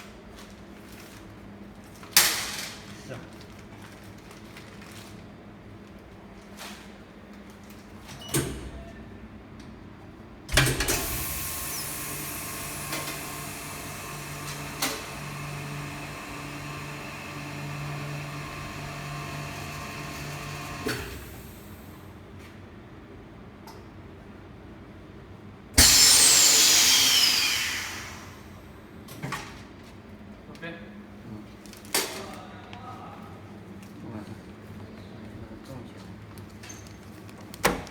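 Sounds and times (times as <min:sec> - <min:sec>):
vacuum pump humming: 0:10.5 - 0:21.9, 0:25.8 - 0:28.6.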